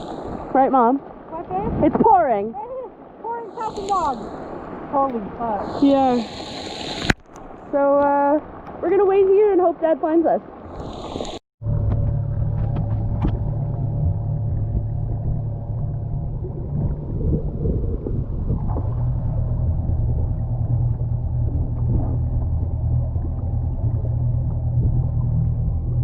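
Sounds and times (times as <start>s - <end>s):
boat motor running: 11.6s - 26.0s.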